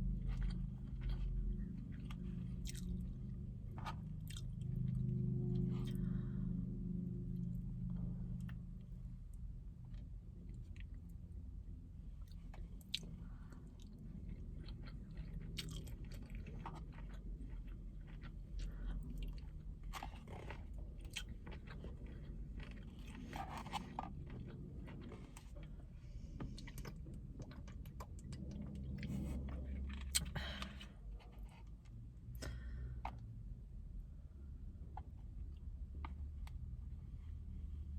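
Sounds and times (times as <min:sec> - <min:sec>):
person chewing and crunching food: 0:00.0 - 0:06.5, 0:12.1 - 0:31.7.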